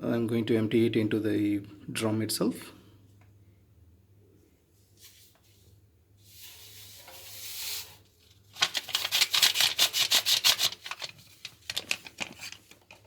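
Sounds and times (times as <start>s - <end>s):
hiss of pouring grains: 6.2s - 8.0s.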